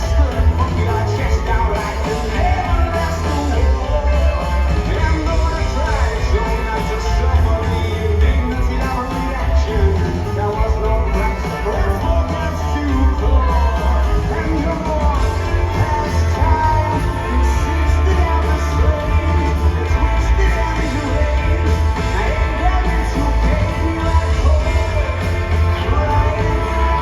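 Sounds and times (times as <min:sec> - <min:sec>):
bass guitar: 0:00.0 - 0:27.0
drums: 0:00.0 - 0:27.0
electric guitar: 0:00.0 - 0:27.0.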